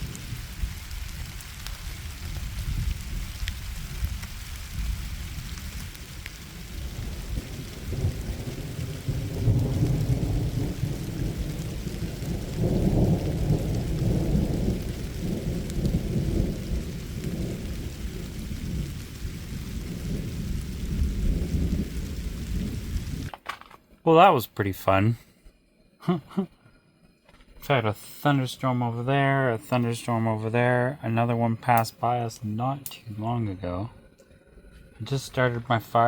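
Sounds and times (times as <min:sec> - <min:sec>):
thunder rolling and rumbling: 0:00.0 - 0:23.3
light rain: 0:00.0 - 0:36.0.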